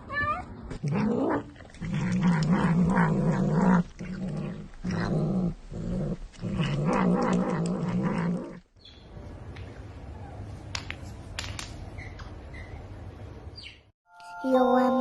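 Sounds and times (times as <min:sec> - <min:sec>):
pet animal growling: 0:00.7 - 0:08.7.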